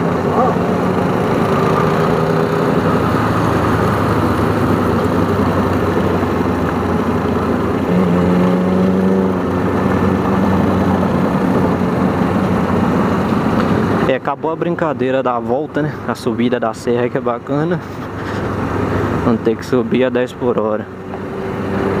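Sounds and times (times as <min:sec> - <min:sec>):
motorcycle engine running: 0:00.0 - 0:14.0
wind and road noise: 0:00.0 - 0:22.0.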